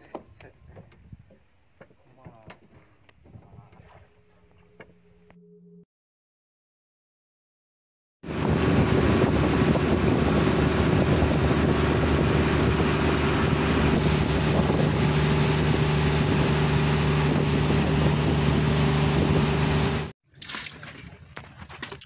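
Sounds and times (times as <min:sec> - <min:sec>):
wind buffeting microphone: 0:08.3 - 0:20.0
boat engine running: 0:08.3 - 0:20.1.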